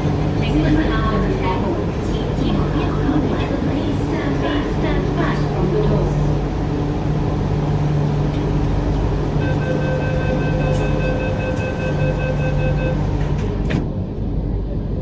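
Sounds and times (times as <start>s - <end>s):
train hum: 0.0s - 15.0s
train doors shutting: 7.9s - 14.4s.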